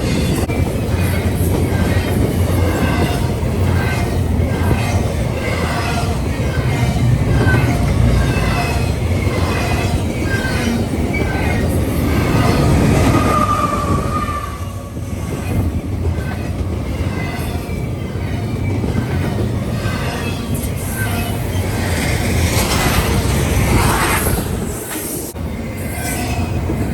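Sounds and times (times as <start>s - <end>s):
train rumbling by: 0.0s - 26.9s
metallic wheel squeals: 4.8s - 22.0s, 25.0s - 26.9s.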